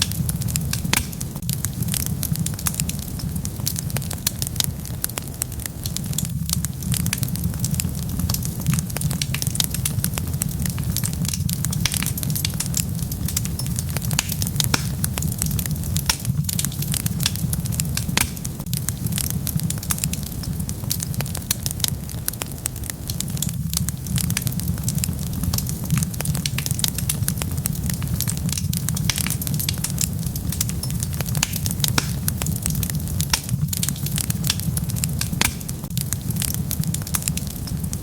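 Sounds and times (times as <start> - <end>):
low rumble of fire: 0.0 - 38.0
wood fire crackling: 0.0 - 38.0.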